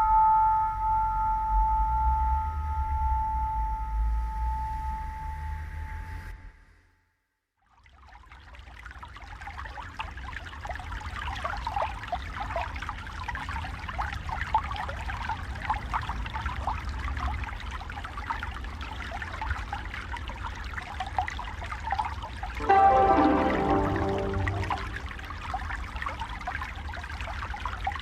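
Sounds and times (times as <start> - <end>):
stream babbling and trickling: 7.7 - 28.0.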